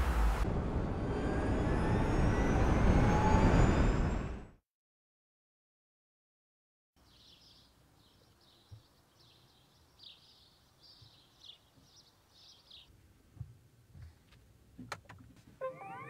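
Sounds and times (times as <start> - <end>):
small birds chirping: 7.0 - 12.9.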